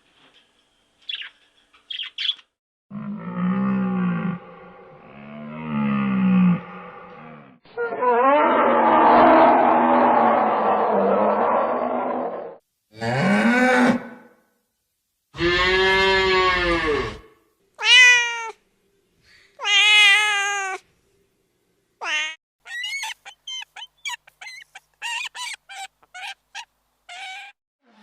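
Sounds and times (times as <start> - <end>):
cat meowing: 17.8 - 18.6, 19.6 - 20.8, 22.0 - 27.6.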